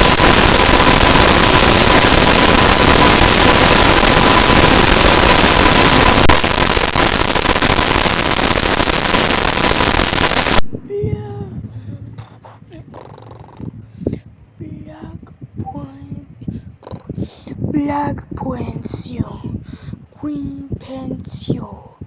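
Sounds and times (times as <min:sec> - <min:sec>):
distorted crackling electronic noise: 0:00.0 - 0:11.3.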